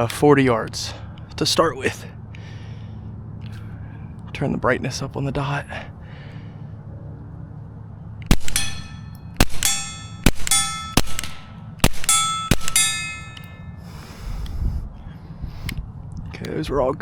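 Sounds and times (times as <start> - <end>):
suppressed pistol shots: 8.3 - 13.5
steel target plate clanging: 8.3 - 13.6.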